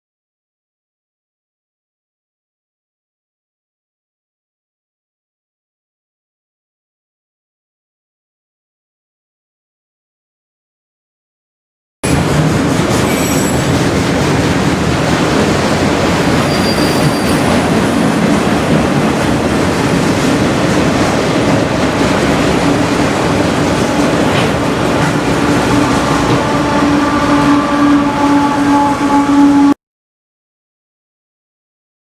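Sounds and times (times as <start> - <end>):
railroad cars rumbling and rattling: 12.0 - 29.8
wheel squeal: 13.0 - 13.8, 16.0 - 18.1.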